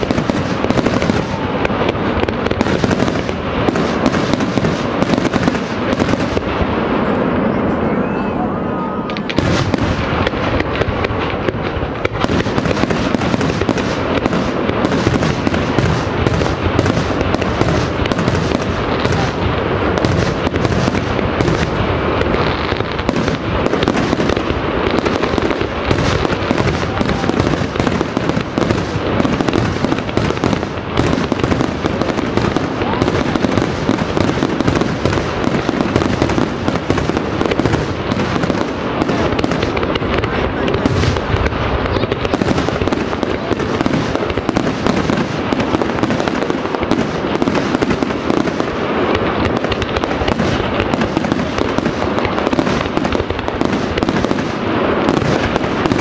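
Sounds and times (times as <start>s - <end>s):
fireworks launching and bursting: 0.0s - 56.0s.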